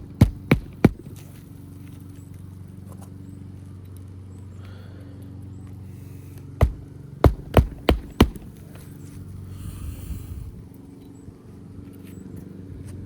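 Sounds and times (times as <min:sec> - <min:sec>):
hatchet hammering roofing nail: 0:00.0 - 0:01.2, 0:06.6 - 0:08.6
steady low hum: 0:00.0 - 0:13.0.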